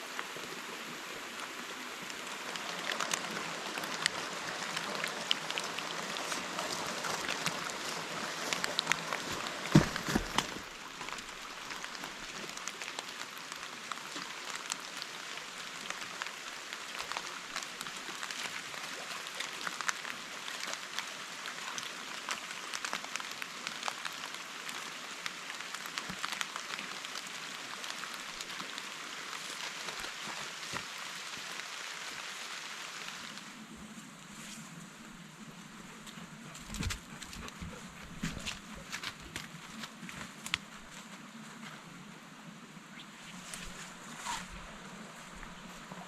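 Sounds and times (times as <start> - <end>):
rain falling: 0.0 - 46.0.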